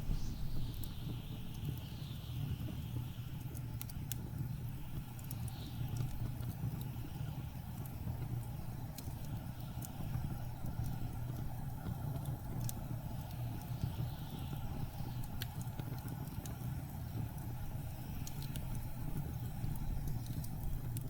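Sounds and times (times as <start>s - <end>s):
blizzard wind gusting: 0.0s - 1.2s
wood fire crackling: 0.0s - 21.0s.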